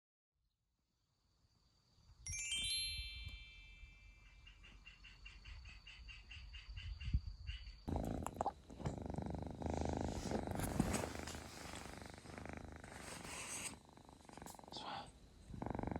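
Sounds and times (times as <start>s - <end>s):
bright chime jingle: 2.2s - 4.6s
kitten purring: 7.9s - 15.9s.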